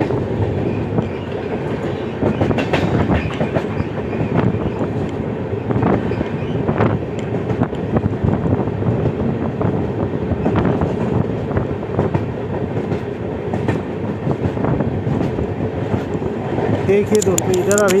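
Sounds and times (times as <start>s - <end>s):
train wheels rumbling on rails: 0.0s - 18.0s
clicks over rail joints: 12.0s - 18.0s.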